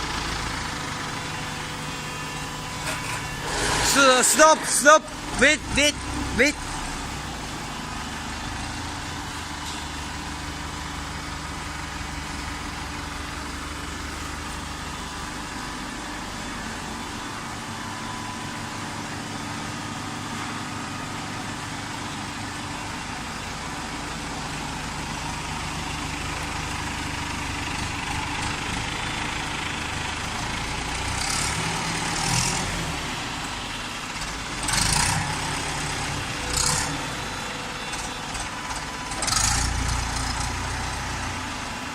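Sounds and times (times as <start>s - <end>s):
loud bursts of noise: 3.3s - 6.6s.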